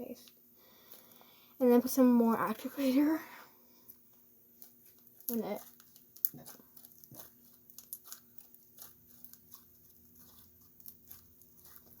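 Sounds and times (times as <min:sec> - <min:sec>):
slime sticky clicks and crackles: 0:04.6 - 0:12.0.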